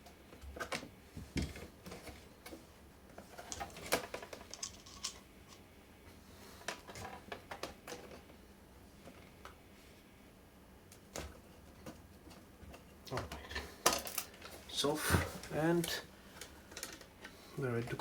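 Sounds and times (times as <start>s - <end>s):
plastic and metal parts handled: 3.2s - 5.2s.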